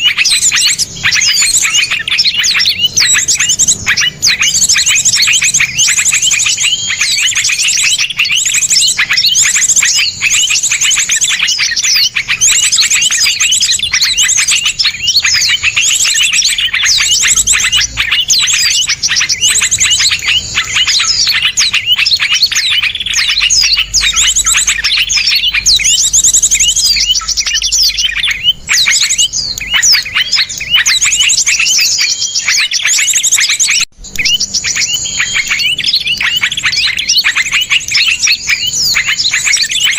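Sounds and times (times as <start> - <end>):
songbirds trilling: 0.0 - 39.9.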